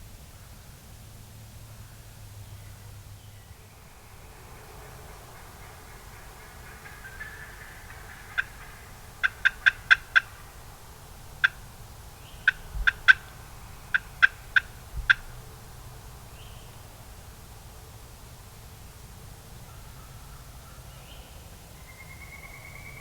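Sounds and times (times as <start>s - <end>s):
turkey yelps: 5.7s - 10.5s, 12.5s - 13.3s, 13.9s - 15.3s.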